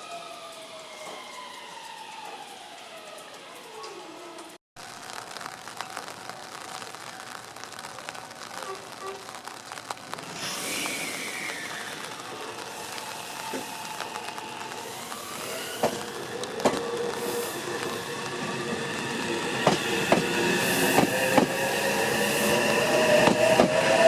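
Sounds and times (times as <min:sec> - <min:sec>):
electric train moving: 0:10.4 - 0:24.0
squealing wheels: 0:10.4 - 0:24.0.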